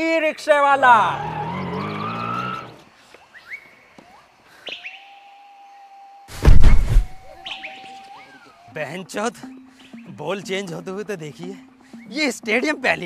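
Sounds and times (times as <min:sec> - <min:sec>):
birds chirping: 0:00.0 - 0:13.0
loud low thump: 0:06.4 - 0:07.3.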